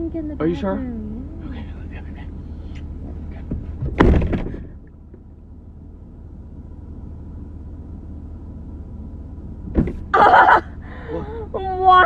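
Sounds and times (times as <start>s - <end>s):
parked car hum: 0.0s - 12.0s
car door slamming: 3.4s - 4.8s, 9.6s - 10.2s.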